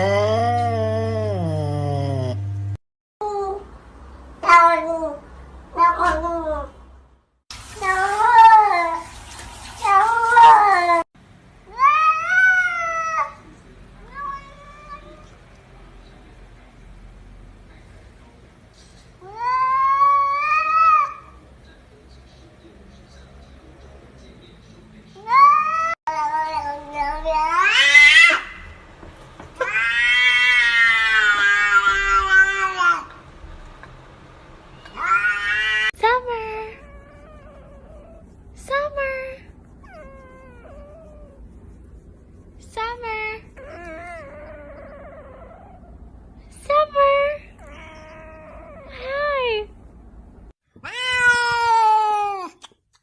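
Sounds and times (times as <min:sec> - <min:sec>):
cat meowing: 0:25.2 - 0:28.6, 0:29.6 - 0:33.1, 0:34.8 - 0:36.0, 0:50.8 - 0:52.5.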